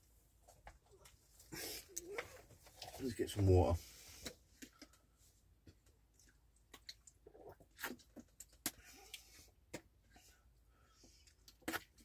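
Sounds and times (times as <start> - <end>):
faint chewing: 4.1 - 12.0.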